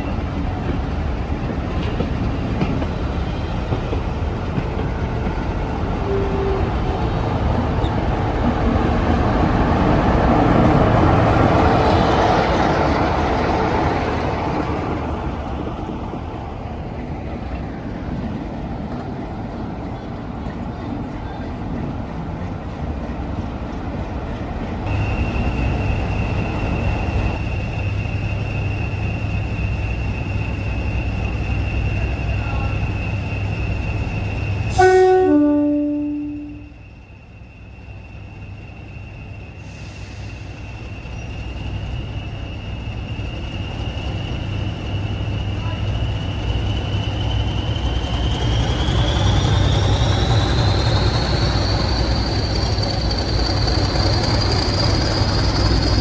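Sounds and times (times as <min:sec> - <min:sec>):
diesel locomotive rumbling: 0:00.0 - 0:56.0
high-pitched squeal: 0:35.8 - 0:56.0.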